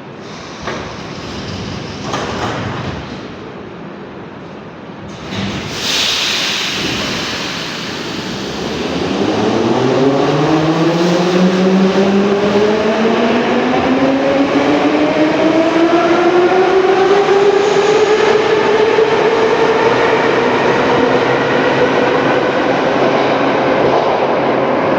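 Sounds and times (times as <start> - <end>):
hiss of air: 5.1 - 9.2.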